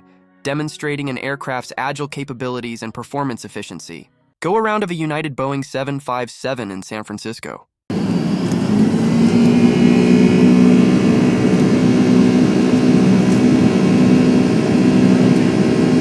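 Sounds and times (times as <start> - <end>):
jet engines droning: 7.9 - 16.0.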